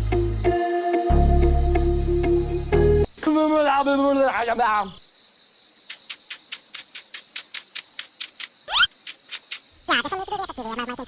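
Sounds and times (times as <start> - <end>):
pulsing insect chirp: 0.0 - 11.0
high-pitched insect chirring: 5.0 - 11.0.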